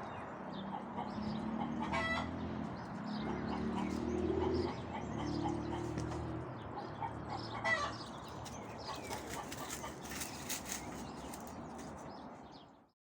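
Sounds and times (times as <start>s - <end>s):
hens clucking: 0.7s - 2.4s, 3.2s - 11.6s.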